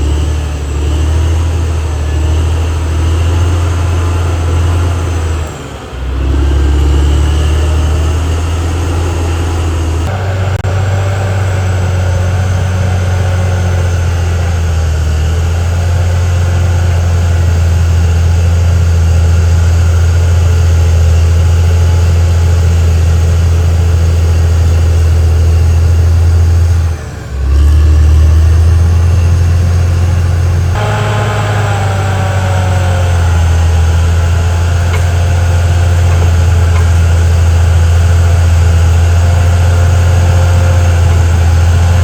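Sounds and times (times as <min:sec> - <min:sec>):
bulldozer diesel engine running: 0:00.0 - 0:42.0.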